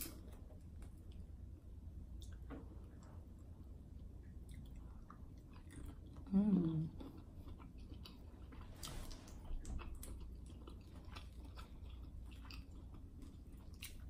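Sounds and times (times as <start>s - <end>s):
person chewing: 4.2s - 14.0s.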